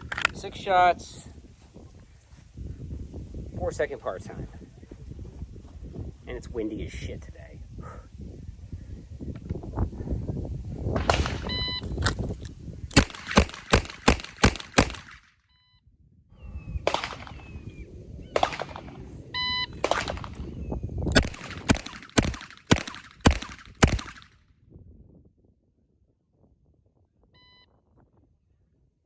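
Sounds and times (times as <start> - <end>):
wind rumbling on microphone: 0.0 - 15.2, 15.9 - 29.0
shot timer beeps: 11.4 - 12.0, 19.4 - 19.8
revolver shots: 18.3 - 19.1, 19.8 - 24.2.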